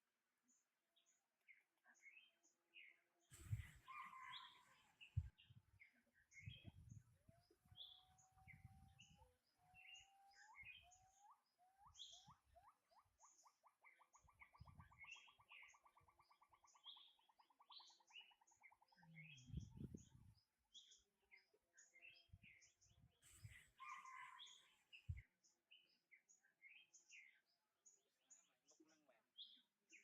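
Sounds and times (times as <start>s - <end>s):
birds chirping: 2.1s - 21.0s, 22.0s - 25.2s.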